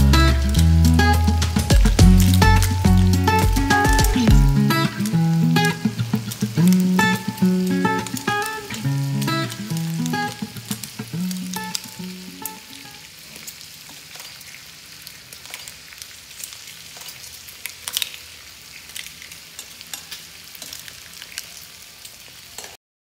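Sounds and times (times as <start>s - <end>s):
background music: 0.0s - 10.4s
clams sizzling in a pot: 0.0s - 22.8s.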